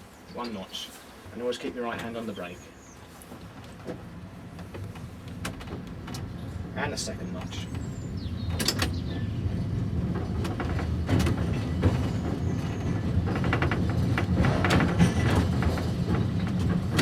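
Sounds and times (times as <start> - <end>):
electric tram rumbling: 0.0 - 17.0
wheels clicking and knocking: 3.4 - 17.0.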